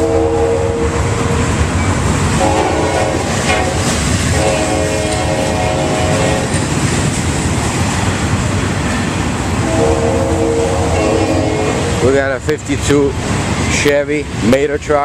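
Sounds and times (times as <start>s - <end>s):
train horn blasts: 0.0s - 1.5s, 2.3s - 6.7s, 9.6s - 12.1s
rumble of passing train: 0.0s - 15.0s.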